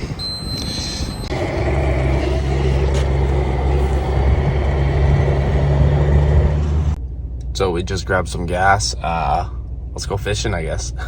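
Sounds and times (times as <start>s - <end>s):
vehicle engine droning: 0.0s - 11.0s
high electronic beep: 0.2s - 1.4s.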